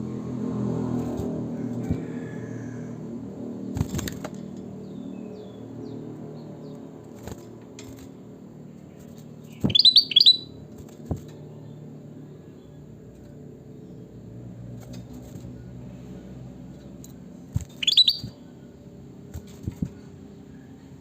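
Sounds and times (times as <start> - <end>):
bird chirping: 4.7 - 6.9, 8.8 - 10.7, 17.6 - 18.5.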